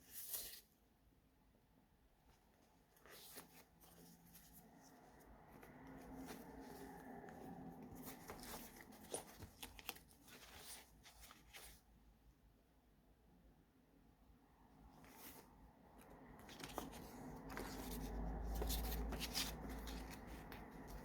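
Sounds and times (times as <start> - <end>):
paper pages rustling: 0.0 - 0.7, 2.6 - 11.9, 15.0 - 21.0.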